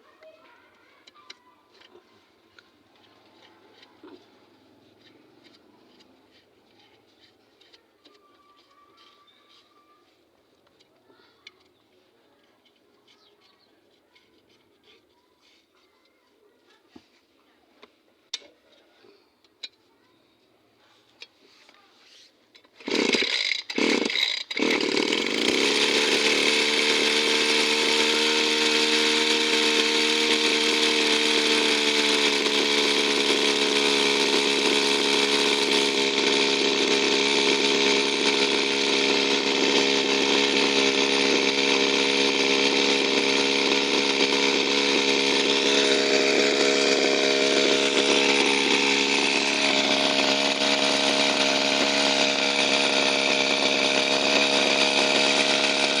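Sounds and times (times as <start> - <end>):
two-stroke engine starting and running: 0.0 - 9.7, 22.5 - 56.0.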